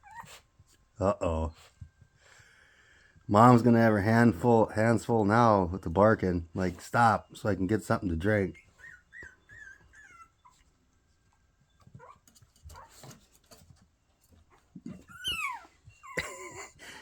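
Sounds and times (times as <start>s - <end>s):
puppy yelp: 0.0s - 0.5s, 8.6s - 10.8s, 11.7s - 13.2s, 14.5s - 16.4s
puppy yipping: 0.0s - 0.5s, 8.6s - 13.2s, 14.5s - 16.3s.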